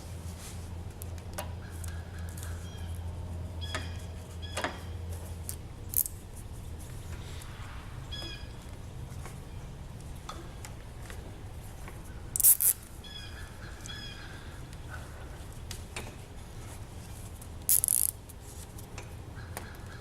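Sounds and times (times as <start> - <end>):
low steady hum: 0.0 - 19.4
plastic wire tie zipping: 5.5 - 6.2, 12.4 - 12.9, 17.7 - 18.3.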